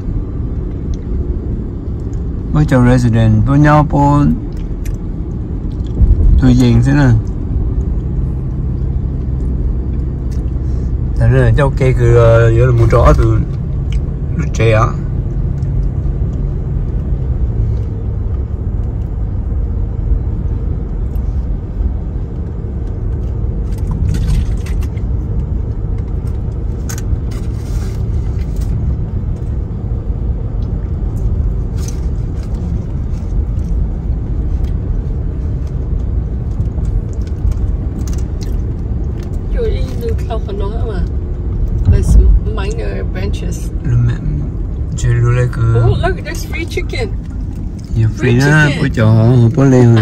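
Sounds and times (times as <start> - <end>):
car road and engine rumble: 0.0 - 50.0.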